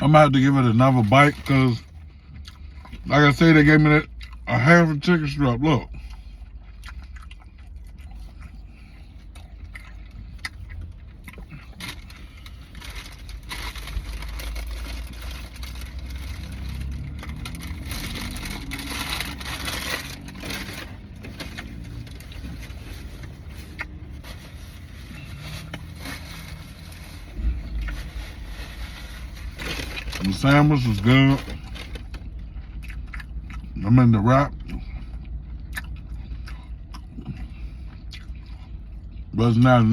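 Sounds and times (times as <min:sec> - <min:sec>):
steady low hum: 0:00.0 - 0:39.9
person chewing: 0:01.8 - 0:03.1, 0:04.0 - 0:04.6, 0:05.8 - 0:28.8, 0:30.9 - 0:33.8, 0:34.5 - 0:39.3
paper wrapper crinkling: 0:11.8 - 0:32.2.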